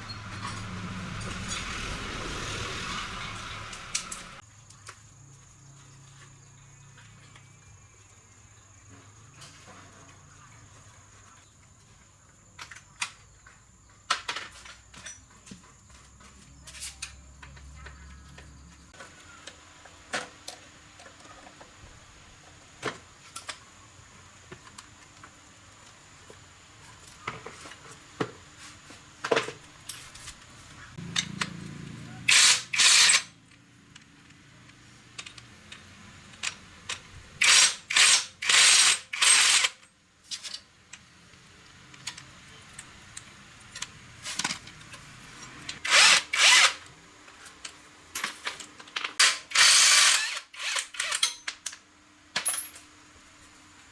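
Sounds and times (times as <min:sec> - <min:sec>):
metal tools clicking and knocking: 0:50.7 - 0:51.8.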